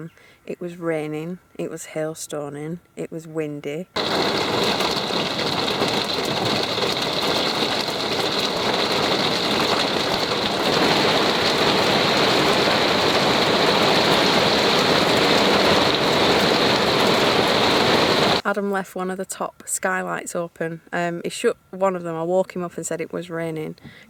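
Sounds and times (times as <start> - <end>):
heavy rain pelting down: 4.0 - 18.4.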